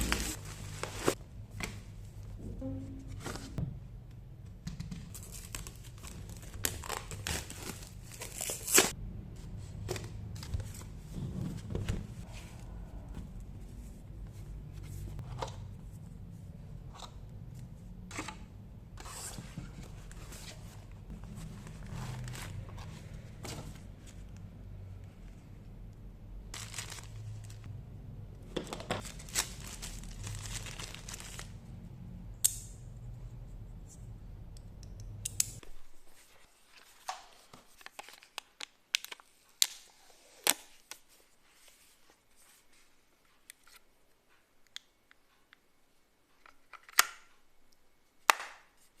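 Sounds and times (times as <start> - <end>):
low steady hum: 0.0 - 36.0
packaging rustling and tearing: 5.1 - 8.9, 26.5 - 27.6, 29.0 - 31.6.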